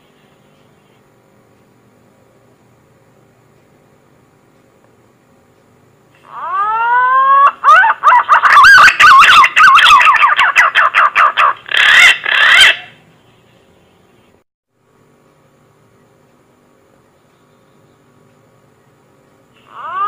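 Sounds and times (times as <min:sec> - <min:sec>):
faint hum: 0:00.0 - 0:20.0
warbling pigeon whistles: 0:06.4 - 0:13.0.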